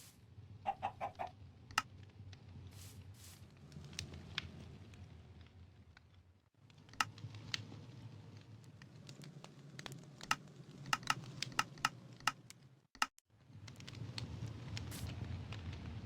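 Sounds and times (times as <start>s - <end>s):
campfire crackling and popping: 3.4s - 12.8s, 13.4s - 16.0s.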